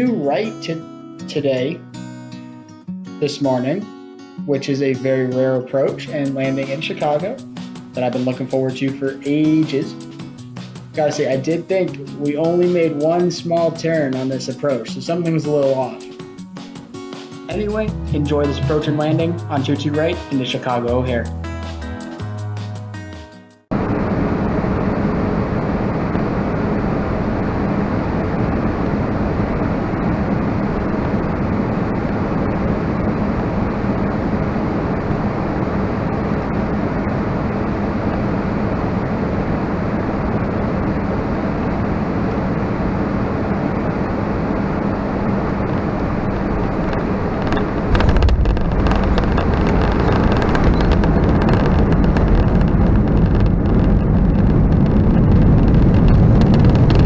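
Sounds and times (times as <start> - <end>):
airflow rushing in aircraft cabin: 23.7 - 57.0
landing gear rumbling on runway: 45.5 - 57.0
wheels touching down: 46.8 - 57.0.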